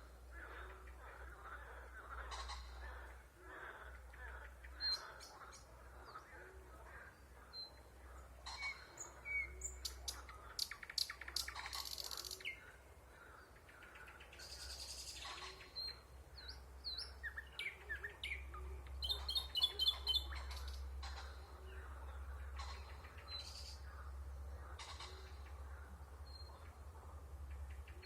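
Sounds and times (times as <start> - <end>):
steady low hum: 0.0 - 28.0
nightingale singing: 14.3 - 20.9.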